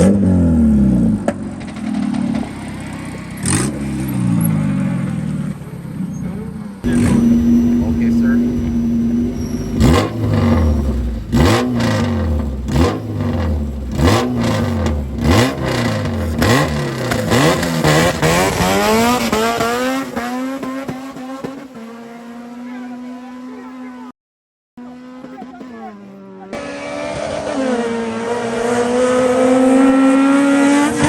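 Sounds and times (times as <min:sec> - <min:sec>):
car pulling away: 0:00.0 - 0:24.0, 0:24.8 - 0:31.0
car idling: 0:00.8 - 0:19.6
car engine revving hard: 0:03.4 - 0:04.8, 0:06.8 - 0:24.1, 0:24.8 - 0:31.0.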